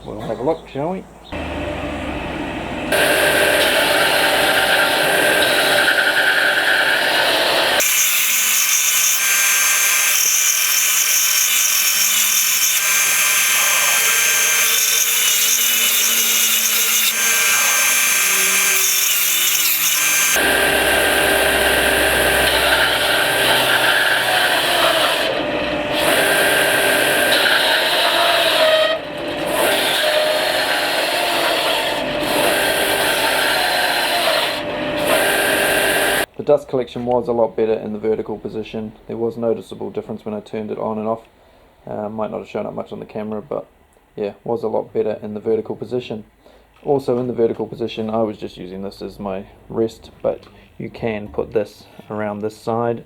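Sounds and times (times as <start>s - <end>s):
bench sander whirring: 1.4s - 36.3s.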